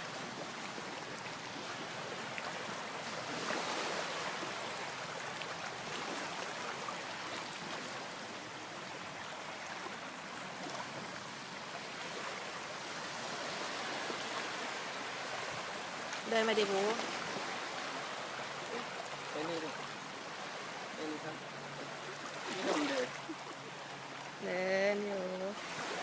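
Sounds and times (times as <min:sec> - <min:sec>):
sea waves breaking on a beach: 0:00.0 - 0:26.0.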